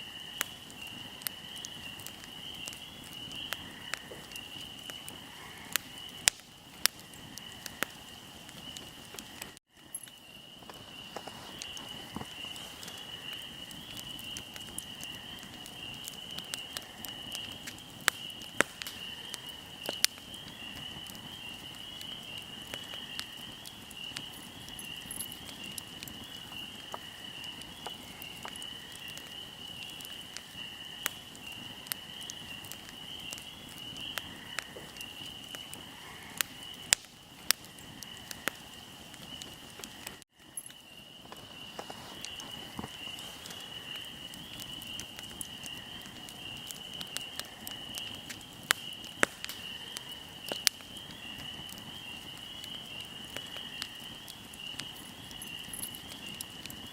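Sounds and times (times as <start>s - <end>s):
crickets chirring: 0.0s - 56.9s
fire crackling and popping: 0.0s - 56.9s.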